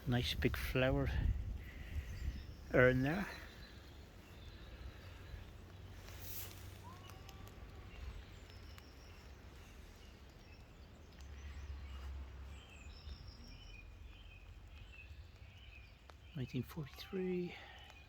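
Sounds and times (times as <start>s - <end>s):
wind rumble on microphone: 0.0s - 5.9s
faint bird chirps: 0.9s - 18.0s.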